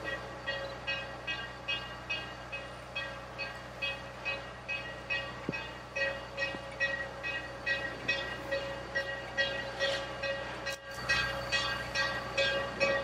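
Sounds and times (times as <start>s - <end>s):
train running: 0.0s - 13.0s.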